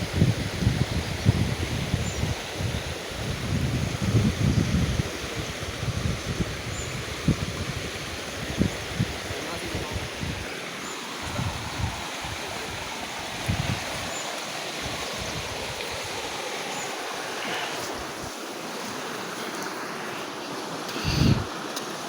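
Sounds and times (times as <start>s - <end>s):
wind rumble on microphone: 0.0s - 10.5s, 11.2s - 14.2s, 14.8s - 16.4s, 21.0s - 21.5s
river rushing: 4.8s - 22.0s.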